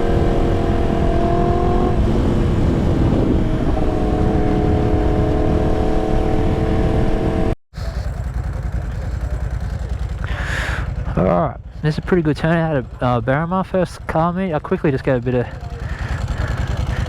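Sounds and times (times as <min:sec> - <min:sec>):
low wind rumble: 0:00.0 - 0:07.6
motorcycle engine running: 0:00.0 - 0:17.0.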